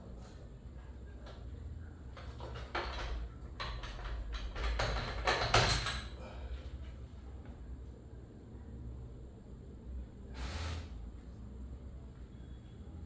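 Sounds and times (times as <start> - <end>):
metal tools knocking and clinking: 2.4 - 6.1.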